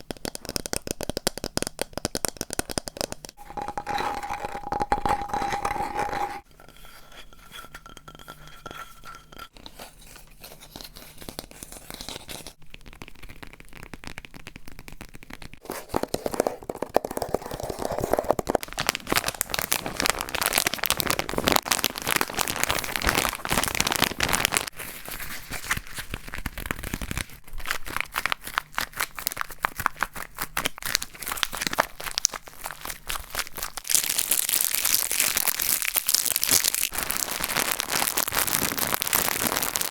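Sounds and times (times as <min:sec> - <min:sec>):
crumpled material crinkling: 0:09.7 - 0:39.9.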